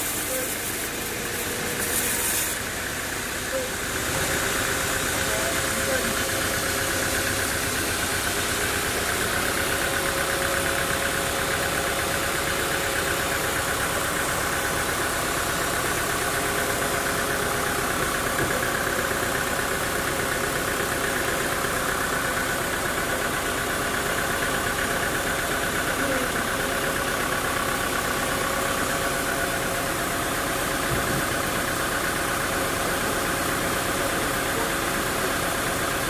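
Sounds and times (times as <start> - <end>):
high machine whine: 0.0 - 22.0
sawmill machinery humming: 0.0 - 36.0.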